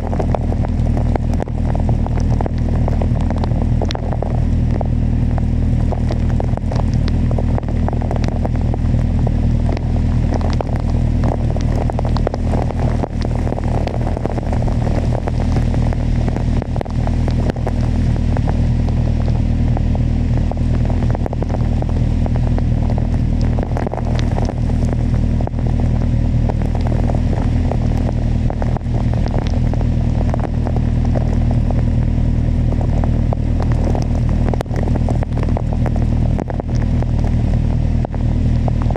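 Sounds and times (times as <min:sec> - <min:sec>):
raindrop ticks: 0:00.0 - 0:38.9
wind and road noise: 0:00.0 - 0:38.9.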